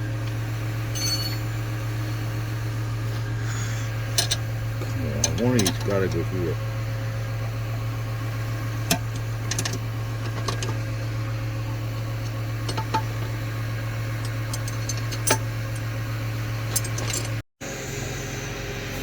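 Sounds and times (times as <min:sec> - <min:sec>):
low engine hum: 0:00.0 - 0:19.0
hand tools clicking on metal: 0:05.2 - 0:06.3.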